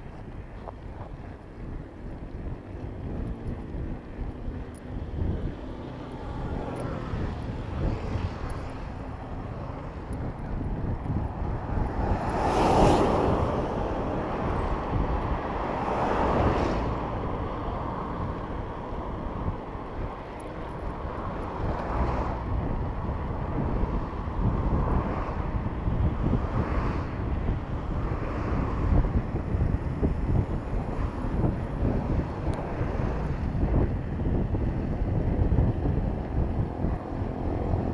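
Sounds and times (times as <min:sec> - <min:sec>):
motor vehicles passing: 0:00.0 - 0:37.9
wind rumbling on microphone: 0:00.0 - 0:37.9.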